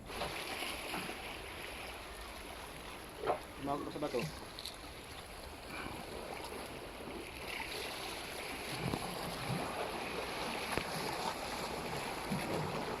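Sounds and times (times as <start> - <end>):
sea water lapping: 0.0 - 13.0.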